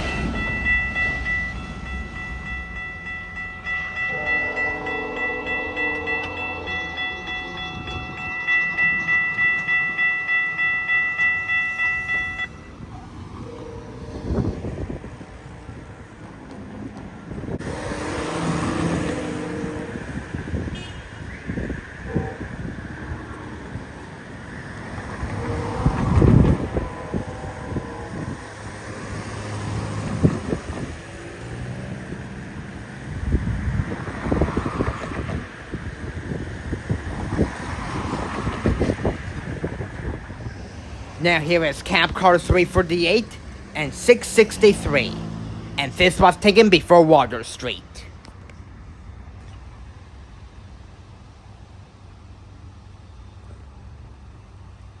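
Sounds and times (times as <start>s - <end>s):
level-crossing bell ringing: 0.0s - 14.5s, 24.9s - 31.8s, 41.2s - 48.1s
distant diesel locomotive drone: 0.0s - 55.0s
passing train: 0.0s - 55.0s
wind buffeting microphone: 6.1s - 10.6s, 12.0s - 43.7s.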